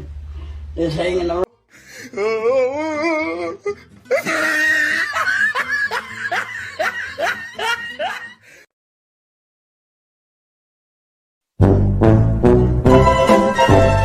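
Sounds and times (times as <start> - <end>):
person wavering vocal sound: 2.0 - 4.6
high-pitched laughter and whoops: 4.1 - 8.4.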